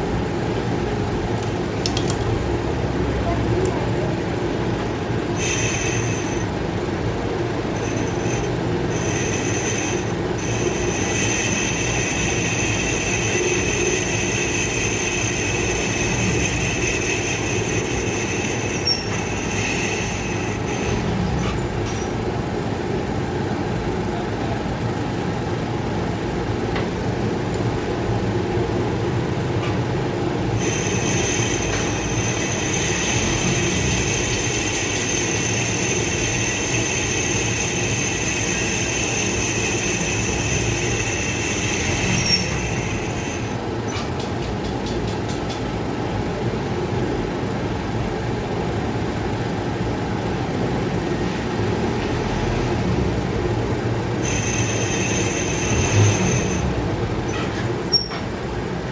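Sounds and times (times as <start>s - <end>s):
metal lathe running: 4.1s - 23.8s, 25.8s - 45.2s, 49.7s - 58.9s
high metallic squeal: 5.4s - 6.5s, 7.7s - 22.1s, 30.6s - 44.0s, 54.2s - 58.3s.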